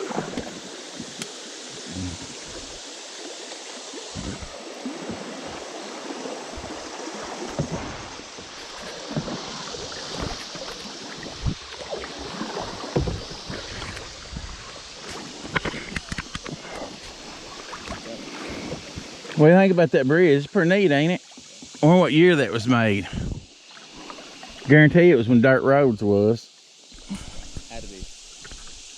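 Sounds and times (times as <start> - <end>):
paddle splashes and bumps: 0.0 - 19.6
river water rushing: 0.0 - 24.7.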